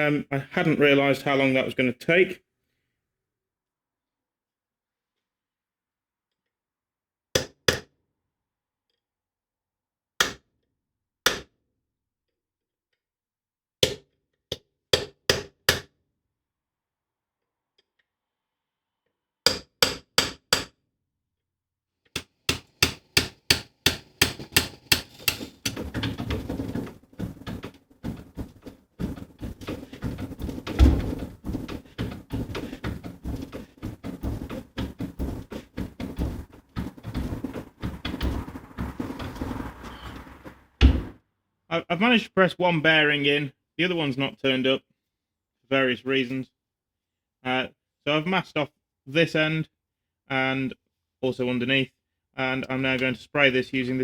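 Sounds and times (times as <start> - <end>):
hammer striking metal: 22.2 - 25.8
rapid knocks: 22.2 - 41.2.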